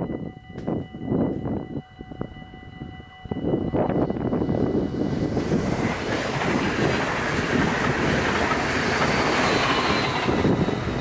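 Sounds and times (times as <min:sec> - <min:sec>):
train passing at speed: 0:03.2 - 0:11.0.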